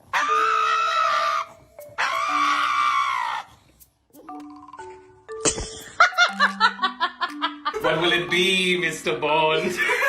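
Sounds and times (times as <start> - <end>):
dog screaming in fear: 0.0 - 3.6
faint steady music tones: 0.0 - 10.0.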